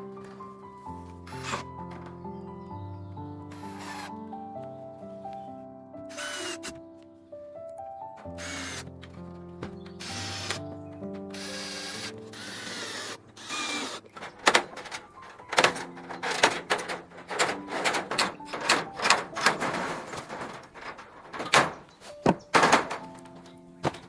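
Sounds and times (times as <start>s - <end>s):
knocks and thunks of building work: 0.0s - 4.1s, 8.2s - 24.0s
soft background music: 0.0s - 24.0s
power drill running: 6.1s - 6.7s, 8.4s - 8.8s, 10.0s - 10.6s, 11.4s - 14.0s.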